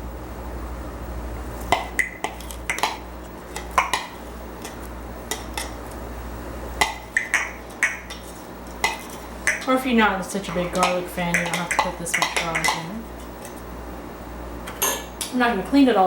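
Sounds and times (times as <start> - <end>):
spoon clinking against bowl: 6.8 - 9.7, 10.5 - 13.4.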